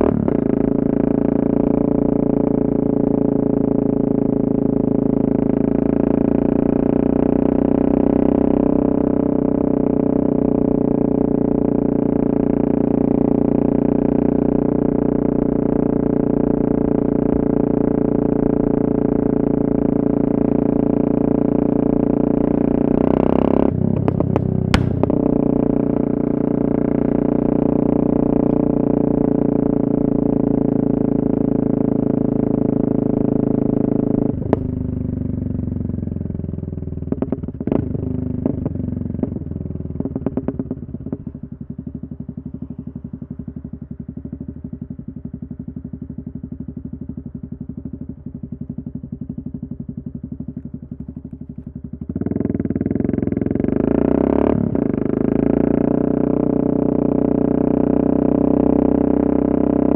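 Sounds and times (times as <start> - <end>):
motorcycle engine running: 0.0 - 59.9
exhaust pops and crackles: 22.4 - 31.0, 33.0 - 35.5, 36.2 - 54.0.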